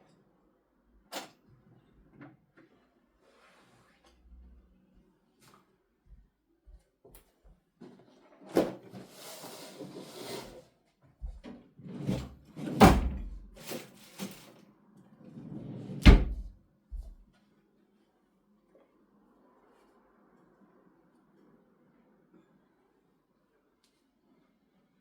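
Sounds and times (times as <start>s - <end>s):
objects rustling and clattering: 11.2s - 14.6s.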